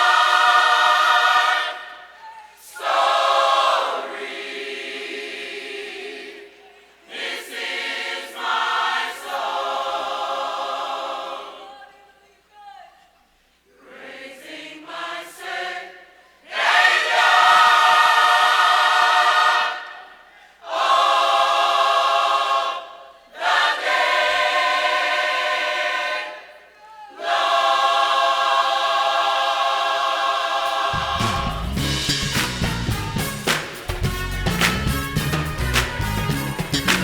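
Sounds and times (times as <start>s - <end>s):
gospel choir singing: 0.0s - 37.0s
band with bass and drums: 31.0s - 37.0s.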